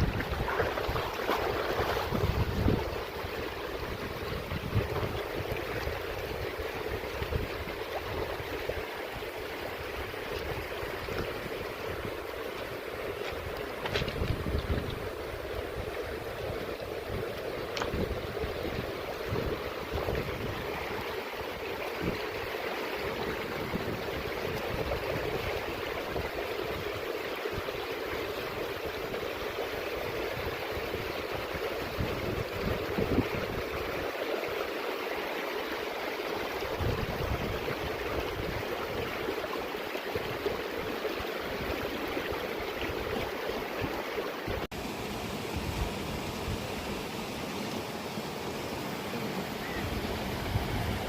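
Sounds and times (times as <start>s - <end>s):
wind buffeting microphone: 0.0s - 8.6s, 9.8s - 21.0s, 30.3s - 34.0s, 36.8s - 39.2s, 49.7s - 51.0s
stream flowing over rocks: 0.0s - 51.0s.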